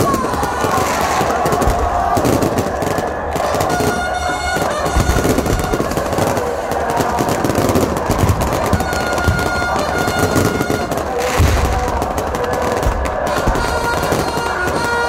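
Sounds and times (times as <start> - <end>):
fireworks crackling and popping: 0.0 - 15.0
low firework booms: 4.8 - 14.9.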